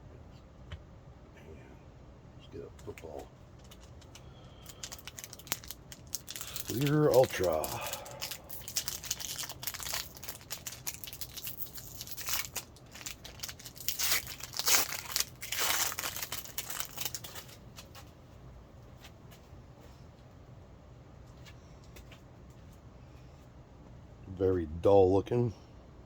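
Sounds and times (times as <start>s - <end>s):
plastic wrapper tearing and crinkling: 3.6s - 18.0s.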